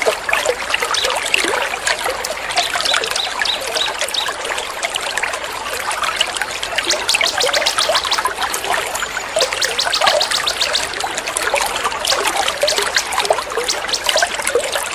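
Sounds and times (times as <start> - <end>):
water trickling: 0.0 - 14.9
songbirds chirping and trilling: 2.4 - 4.7, 6.8 - 14.9.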